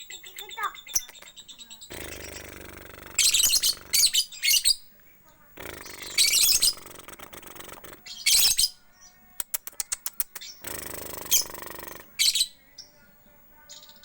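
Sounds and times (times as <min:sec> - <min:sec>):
lovebird shrill chirps: 0:03.2 - 0:04.9, 0:05.8 - 0:06.8, 0:08.1 - 0:08.8
sharp clicks: 0:09.4 - 0:12.0.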